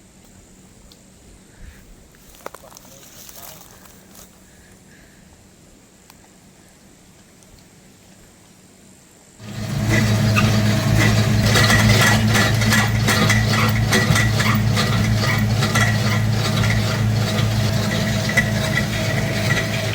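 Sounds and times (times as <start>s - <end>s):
motor humming: 9.4s - 19.9s.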